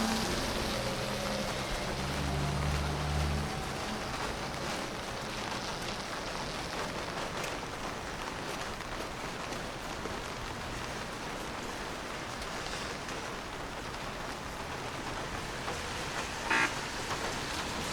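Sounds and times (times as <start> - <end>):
vehicle engine hum: 0.0 - 7.3, 13.8 - 17.9
rain hissing on street: 0.0 - 17.9
raindrop ticks: 0.0 - 17.9.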